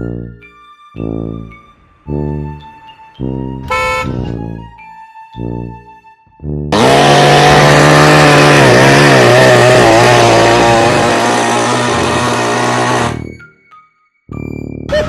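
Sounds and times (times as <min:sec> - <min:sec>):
loud power tool motor: 0:06.8 - 0:13.3.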